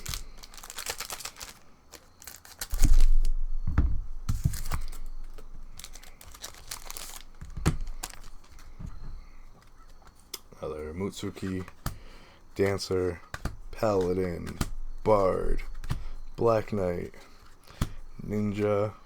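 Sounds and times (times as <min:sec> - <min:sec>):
wrapper tearing and crinkling: 0:00.0 - 0:03.4, 0:04.3 - 0:08.7.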